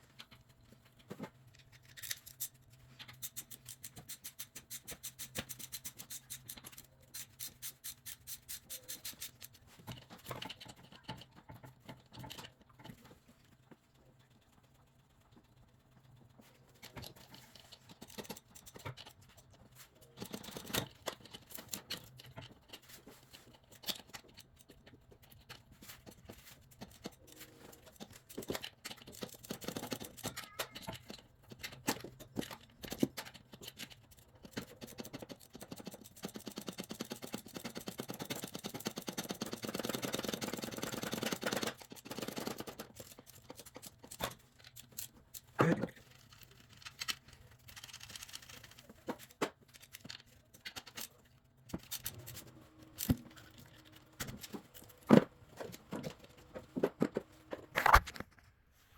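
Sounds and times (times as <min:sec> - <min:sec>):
rapid dense ratchet clicking: 0:32.5 - 0:43.9.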